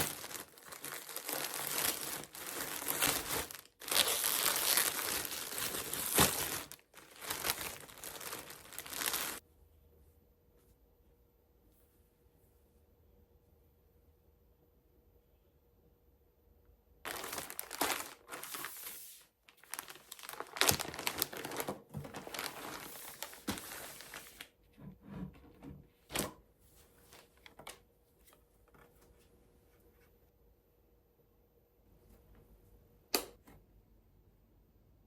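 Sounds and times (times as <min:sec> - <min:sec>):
packaging crinkling and tearing: 0:00.0 - 0:09.4, 0:17.1 - 0:24.5.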